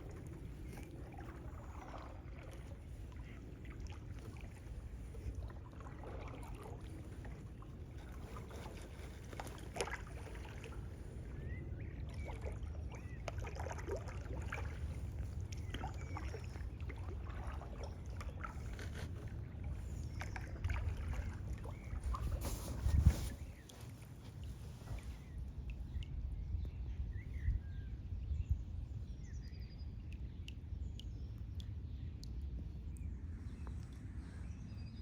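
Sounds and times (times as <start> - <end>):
paddle splashing in water: 0.0 - 11.3, 12.0 - 25.4.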